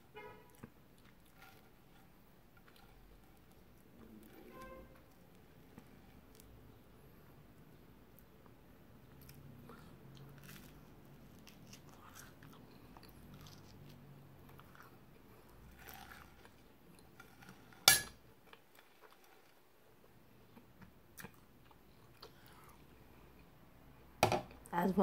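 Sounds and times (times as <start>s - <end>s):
chewing and crunching toast: 0.5s - 4.4s, 8.1s - 23.6s.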